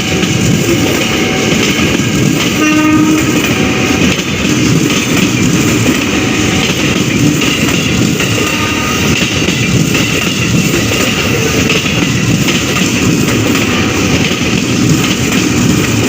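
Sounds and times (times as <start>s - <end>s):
train rumbling past: 0.0s - 16.0s
train horn: 2.5s - 4.1s, 8.3s - 9.2s.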